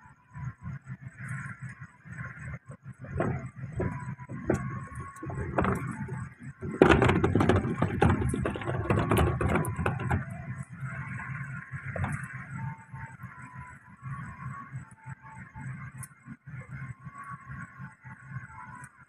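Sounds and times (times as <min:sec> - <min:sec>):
rail vehicle rattling and clattering: 0:03.1 - 0:10.9.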